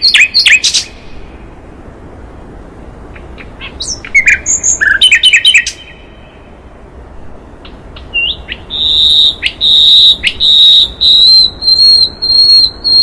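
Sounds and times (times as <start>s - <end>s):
songbird chirps and whistles: 0.0s - 1.2s, 3.1s - 6.5s, 7.4s - 13.0s.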